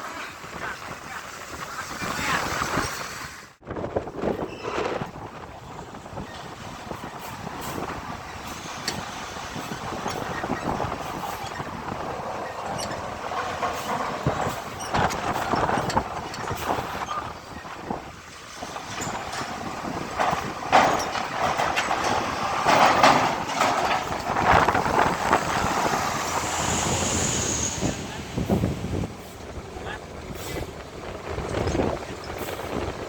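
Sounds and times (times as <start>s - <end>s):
truck engines running: 0.0s - 33.0s
metallic clanks and knocks: 7.4s - 17.4s, 18.4s - 26.4s.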